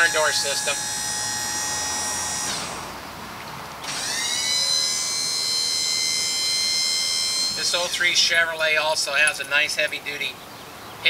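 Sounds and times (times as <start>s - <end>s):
small electric motor whining: 0.0s - 3.2s, 3.8s - 8.2s.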